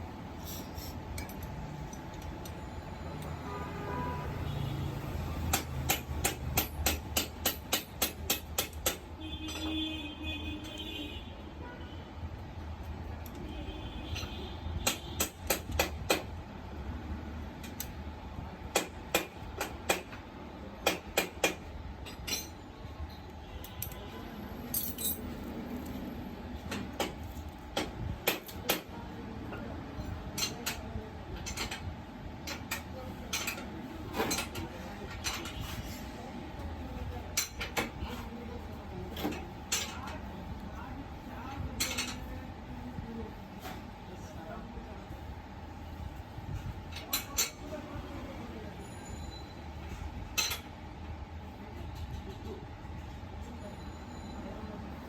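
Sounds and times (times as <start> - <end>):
metal hand tools clinking: 24.7 - 25.4.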